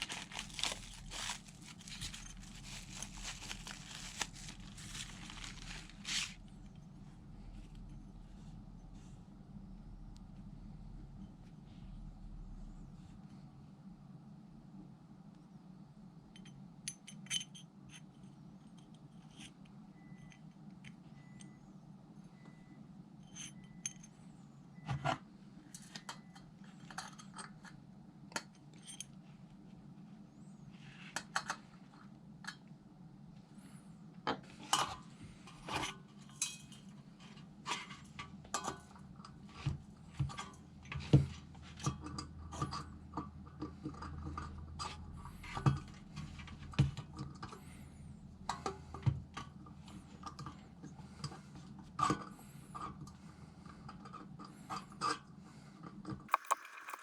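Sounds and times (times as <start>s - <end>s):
metal clinking and scraping: 0.0s - 6.4s, 56.3s - 57.0s
steady low hum: 0.0s - 17.4s.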